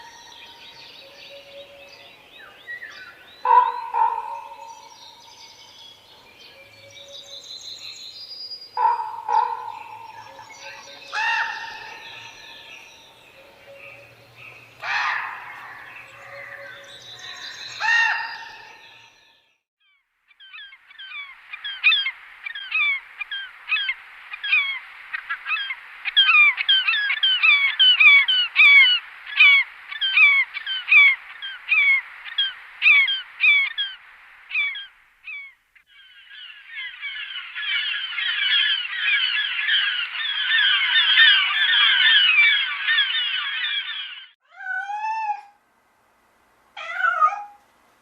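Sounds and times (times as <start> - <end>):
flock of birds chattering: 0.0 - 8.2, 8.8 - 19.2, 20.4 - 44.4
animal calls: 3.4 - 5.0, 8.8 - 12.5.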